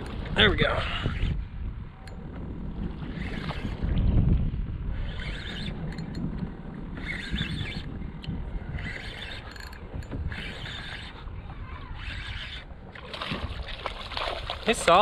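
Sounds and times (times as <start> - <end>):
wind and water rumble: 0.0 - 15.0
spinning reel cranking: 5.0 - 6.3, 6.9 - 7.9, 8.7 - 12.7.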